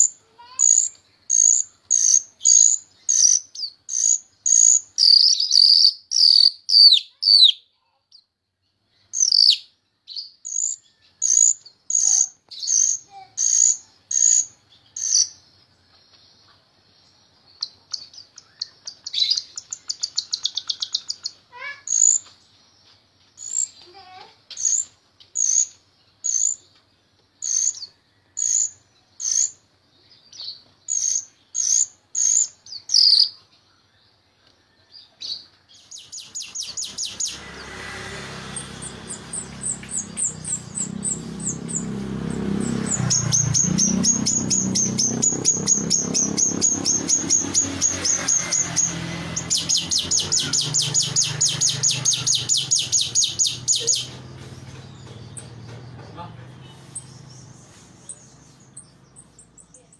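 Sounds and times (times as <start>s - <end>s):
starling singing high calls: 0.0s - 8.3s, 9.0s - 15.6s, 17.5s - 22.4s, 23.4s - 26.7s, 27.4s - 29.6s, 30.2s - 33.4s, 35.0s - 59.9s.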